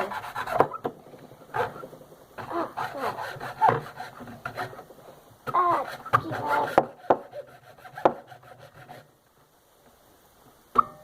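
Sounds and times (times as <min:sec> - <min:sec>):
hand saw cutting plastic: 0:00.0 - 0:00.9, 0:01.5 - 0:04.9, 0:05.5 - 0:09.1.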